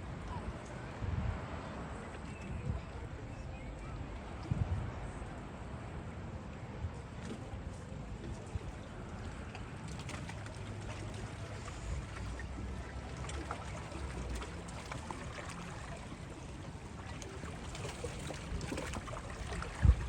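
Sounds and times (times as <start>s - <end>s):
water washing along shore: 7.6s - 20.0s.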